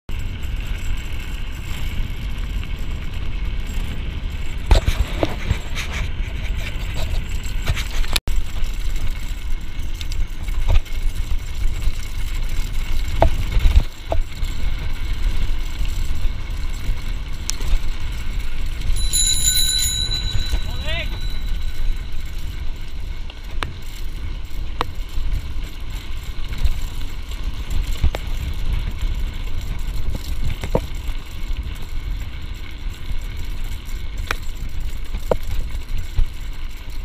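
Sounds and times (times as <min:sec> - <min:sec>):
bike ride rumble: 0:00.1 - 0:37.0
wind noise: 0:00.2 - 0:37.0
strap knocking and rubbing camera: 0:04.7 - 0:08.2
high steady squeal: 0:14.6 - 0:27.8.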